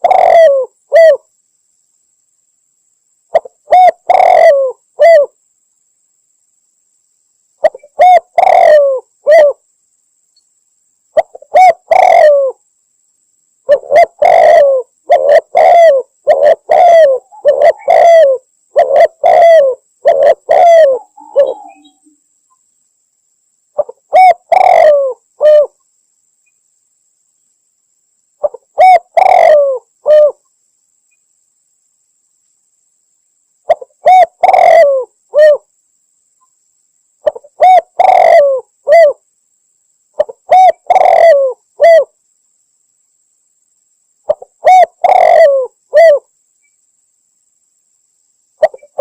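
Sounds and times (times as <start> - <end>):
dove cooing: 0.0 - 1.3, 3.3 - 5.4, 7.6 - 9.6, 11.2 - 12.6, 13.6 - 22.2, 23.8 - 25.8, 28.4 - 30.4, 33.7 - 35.7, 37.2 - 39.2, 40.2 - 42.1, 44.3 - 46.3, 48.6 - 49.0.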